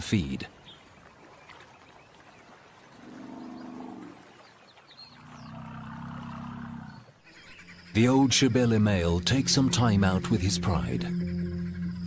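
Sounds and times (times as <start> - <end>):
large animal low calls: 3.0 - 4.2, 5.1 - 7.2.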